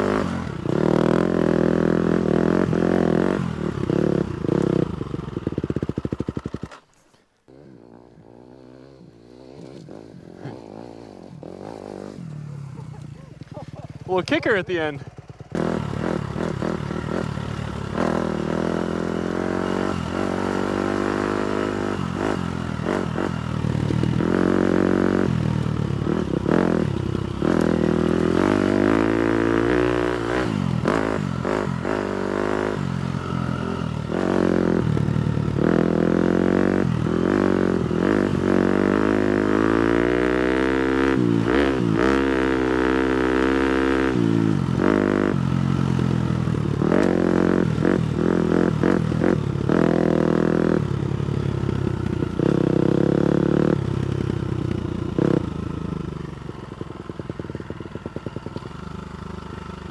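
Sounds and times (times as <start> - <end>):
motocross bike engine revving: 0.0 - 6.9, 7.5 - 56.2.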